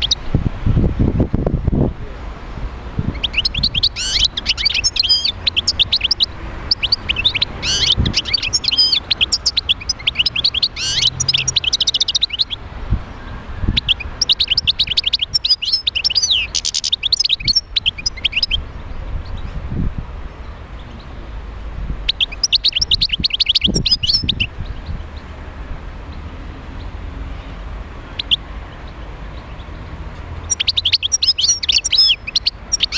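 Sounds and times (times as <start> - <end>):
goldfinch twittering song: 0.0 - 0.4, 3.1 - 12.6, 13.7 - 19.6, 22.0 - 25.3, 28.1 - 32.9.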